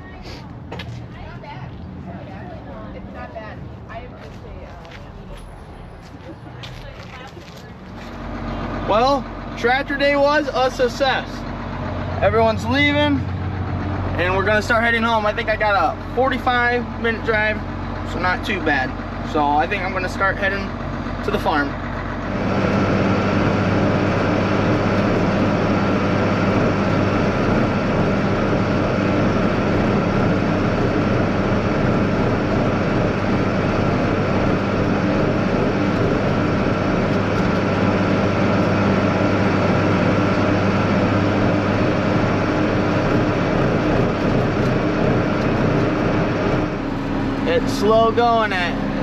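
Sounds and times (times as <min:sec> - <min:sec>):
tractor diesel engine droning: 0:05.1 - 0:49.0.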